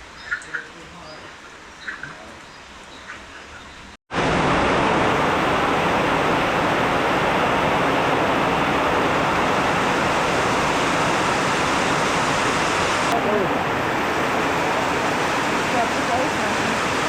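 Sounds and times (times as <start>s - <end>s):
heavy rain falling: 4.1s - 17.0s.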